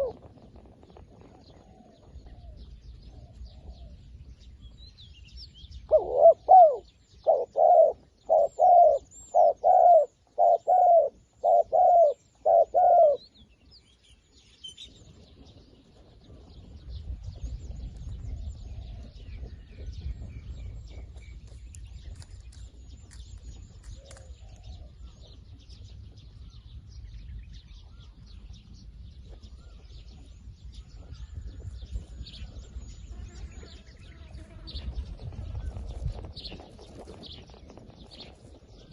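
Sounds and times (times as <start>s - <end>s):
dove cooing: 0.0s - 0.3s, 5.9s - 13.3s
small birds chirping: 0.9s - 38.9s.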